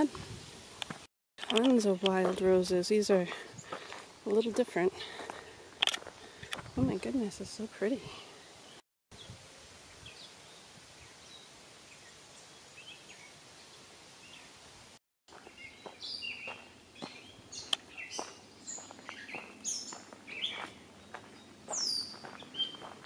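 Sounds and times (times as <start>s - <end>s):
songbirds chirping and singing: 15.3s - 23.0s.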